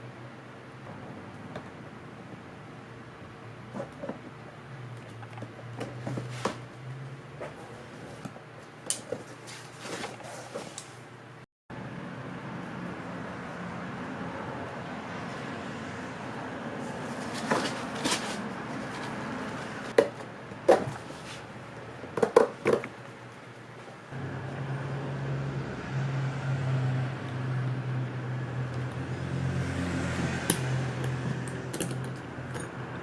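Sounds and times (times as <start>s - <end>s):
metal tools clicking and knocking: 30.5s - 32.8s.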